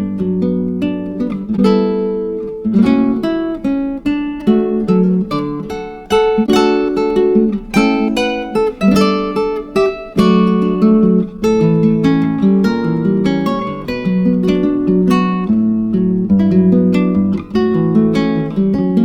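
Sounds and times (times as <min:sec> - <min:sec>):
acoustic guitar picking and strumming: 0:00.0 - 0:19.0.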